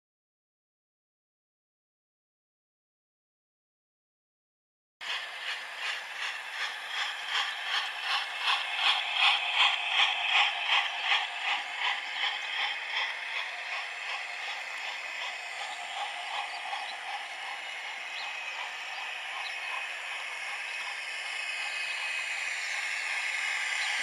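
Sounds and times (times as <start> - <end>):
model train clattering: 5.0 - 24.0.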